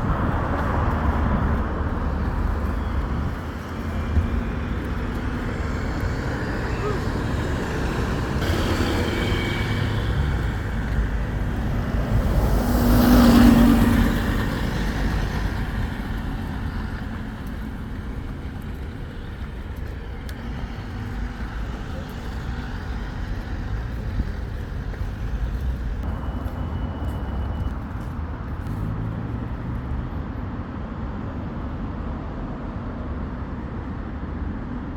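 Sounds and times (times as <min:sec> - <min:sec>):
vehicle passing close: 0:00.0 - 0:26.1
low rumble of engines: 0:00.0 - 0:34.9.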